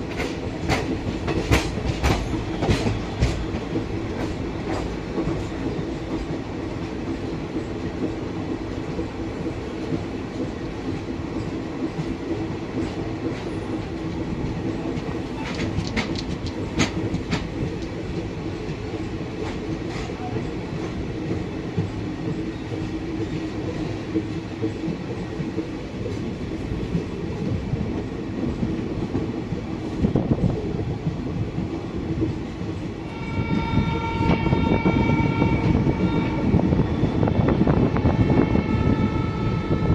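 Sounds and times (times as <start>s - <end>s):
clacks over rail joints: 0.0s - 36.6s
train wheels rumbling on rails: 0.0s - 39.9s
train horn: 33.0s - 39.9s.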